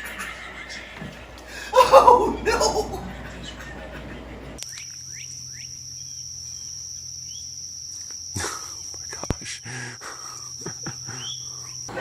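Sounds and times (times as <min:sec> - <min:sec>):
high-pitched insect trill: 0:04.6 - 0:12.0.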